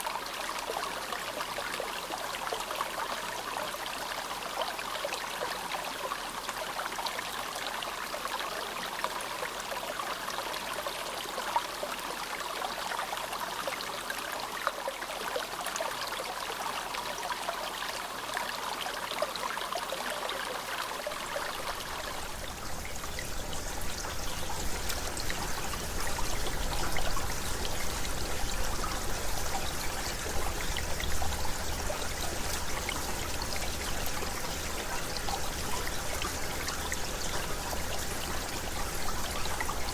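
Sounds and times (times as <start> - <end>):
river murmuring and rushing: 20.9 - 39.9.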